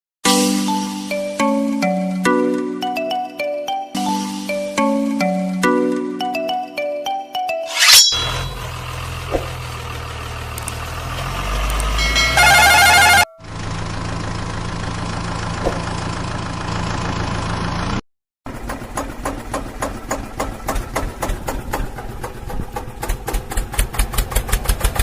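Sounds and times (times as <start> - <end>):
vehicle engine idling: 8.5 - 25.0
vehicle horn blast: 12.2 - 13.6.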